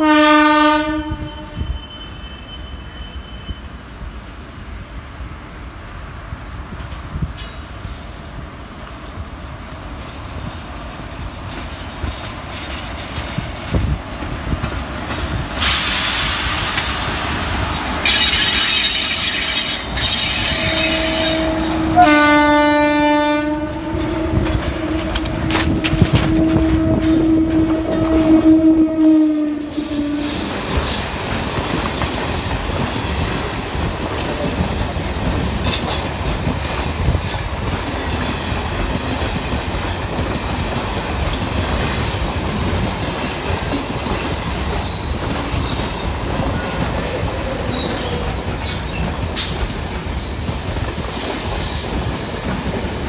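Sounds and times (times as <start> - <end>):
train horn blasts: 0.0 - 3.6, 20.2 - 30.8
freight train wheels rumbling: 0.0 - 53.0
loud hiss: 15.5 - 21.8.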